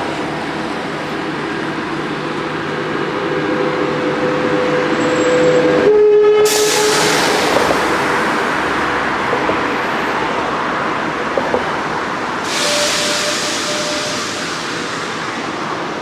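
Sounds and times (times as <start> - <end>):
train wheels rolling on rails: 0.0 - 16.0.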